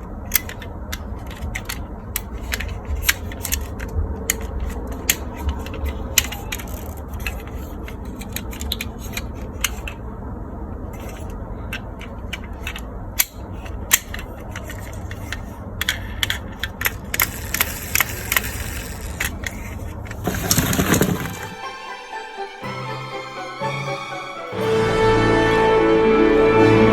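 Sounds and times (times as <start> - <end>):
plastic toys clicking: 0.0 - 10.2, 10.8 - 21.7.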